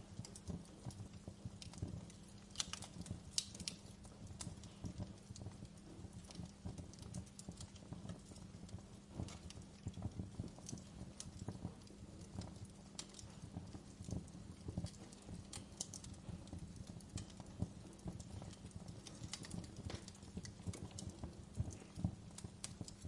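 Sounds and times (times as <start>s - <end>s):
low rumble of flames: 0.0s - 23.0s
wood fire crackling: 0.0s - 23.0s.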